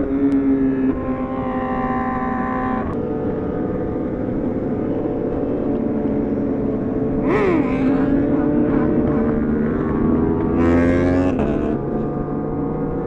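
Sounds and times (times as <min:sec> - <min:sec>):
motorcycle engine cruising: 0:00.0 - 0:13.0
engine revving: 0:07.2 - 0:13.0.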